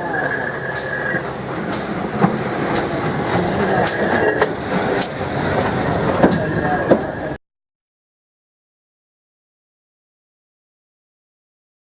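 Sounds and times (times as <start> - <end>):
train rumble: 0.0 - 7.4
train wheels clicking over rail joints: 0.0 - 7.4.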